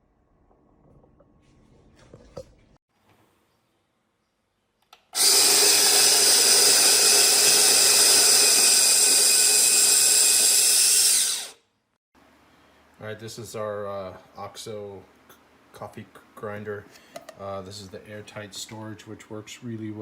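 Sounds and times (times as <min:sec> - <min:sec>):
coffee grinder running: 0:05.2 - 0:11.6.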